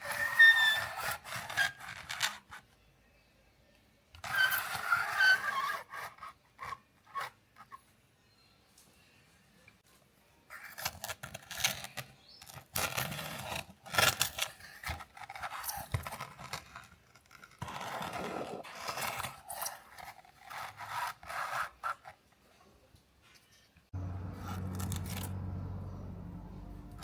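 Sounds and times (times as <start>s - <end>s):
scraping and rubbing on model car: 0.0s - 2.7s, 4.2s - 7.8s, 10.5s - 22.3s.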